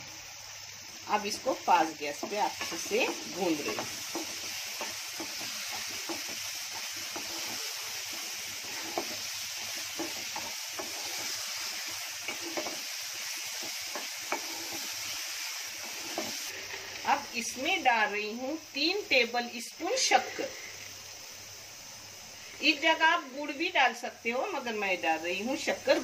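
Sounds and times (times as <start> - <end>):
food sizzling in hot oil: 0.0 - 26.0
wooden spatula scraping a pan: 2.2 - 17.1.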